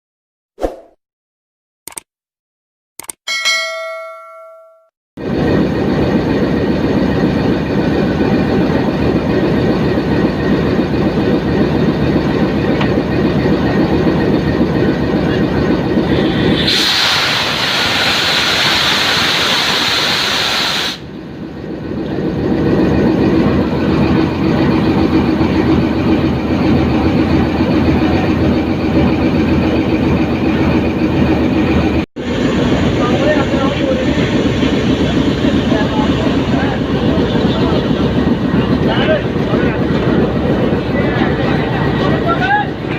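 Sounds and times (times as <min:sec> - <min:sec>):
diesel locomotive rumbling: 0:05.2 - 0:42.9
loud hiss of air release: 0:16.2 - 0:21.0.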